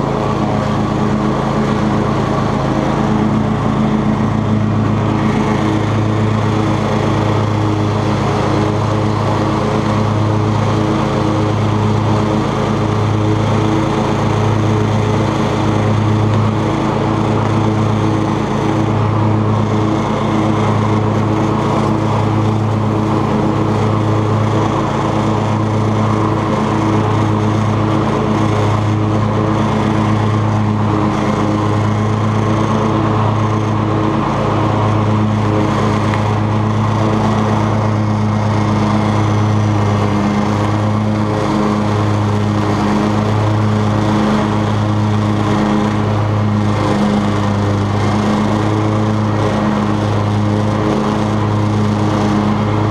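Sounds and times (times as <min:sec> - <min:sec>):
riding mower engine running: 0:00.0 - 0:52.9.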